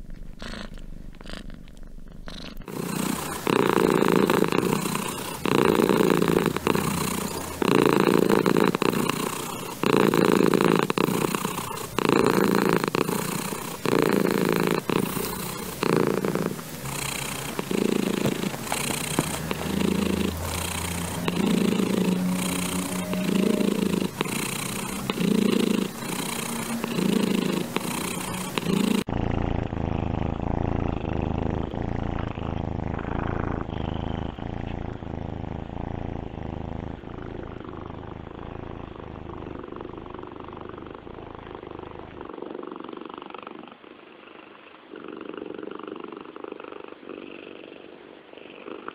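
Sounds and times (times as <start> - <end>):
cat purring: 0.0 - 48.9.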